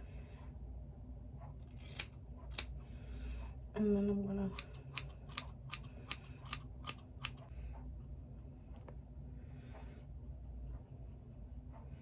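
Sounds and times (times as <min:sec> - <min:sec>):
scissors snipping hair: 0:01.6 - 0:02.8, 0:04.5 - 0:07.5.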